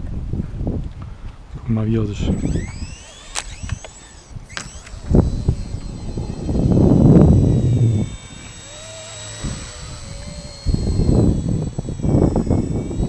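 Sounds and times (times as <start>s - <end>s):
wind buffeting microphone: 0.0s - 13.0s
rc helicopter motor whine: 2.0s - 13.0s.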